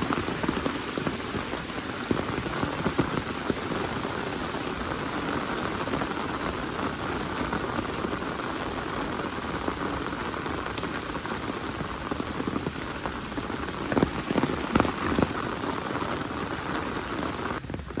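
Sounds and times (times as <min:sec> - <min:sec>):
heavy rain falling: 0:00.0 - 0:18.0
drops splashing: 0:13.7 - 0:15.4.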